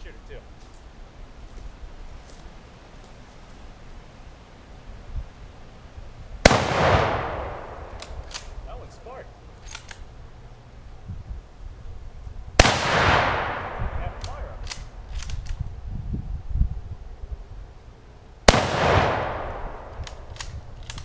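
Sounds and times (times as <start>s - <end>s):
rifle shots echoing: 6.4s - 8.6s, 12.6s - 14.9s, 18.5s - 20.6s.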